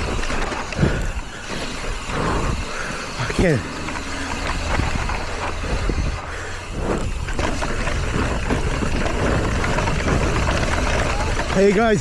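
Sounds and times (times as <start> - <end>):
bike rattles: 0.0 - 12.0
bike tyre noise on rocks: 0.0 - 12.0
wind rushing over microphone: 1.9 - 2.8, 4.4 - 12.0.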